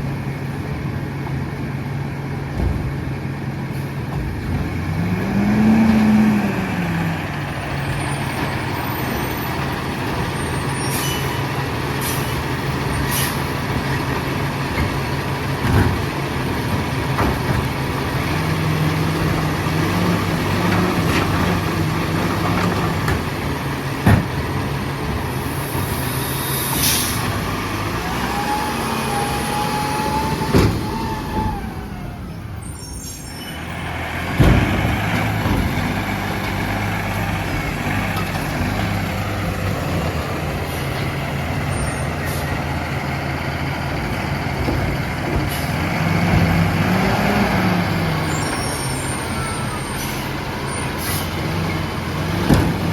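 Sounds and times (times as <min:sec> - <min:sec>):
diesel truck engine running: 0:00.0 - 0:52.9
short air hisses: 0:25.6 - 0:27.3.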